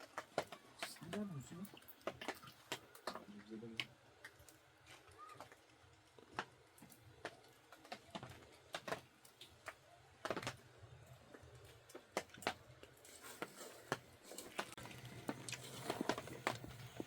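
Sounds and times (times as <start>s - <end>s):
faint clicks and taps: 0.0s - 10.6s.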